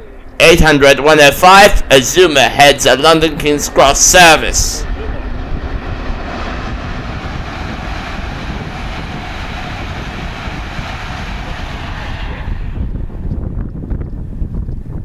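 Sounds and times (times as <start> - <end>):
train passing at speed: 0.0 - 14.6
wind rumbling on microphone: 0.0 - 15.0.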